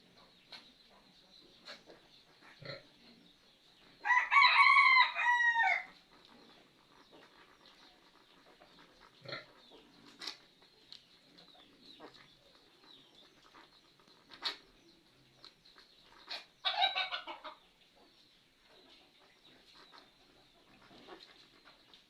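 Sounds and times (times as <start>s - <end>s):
rooster crowing: 4.0s - 5.9s.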